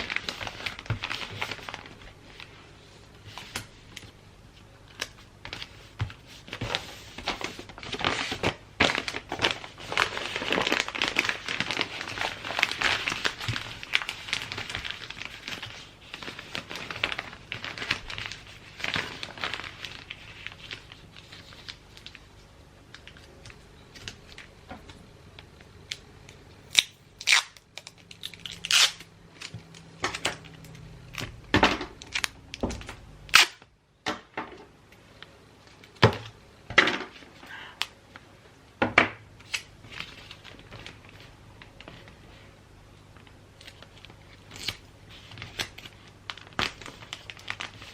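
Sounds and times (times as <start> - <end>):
wrapping paper crinkling and tearing: 0.0 - 24.6, 26.7 - 33.6, 39.4 - 47.9.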